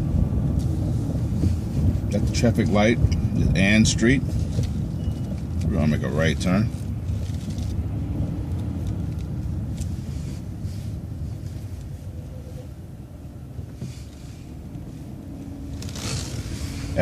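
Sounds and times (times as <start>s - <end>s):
bus engine rumble: 0.0s - 17.0s.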